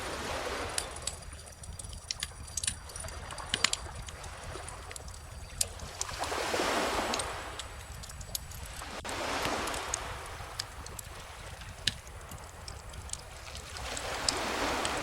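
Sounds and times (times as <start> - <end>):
bonfire crackling: 0.0 - 15.0
ocean waves: 0.0 - 15.0.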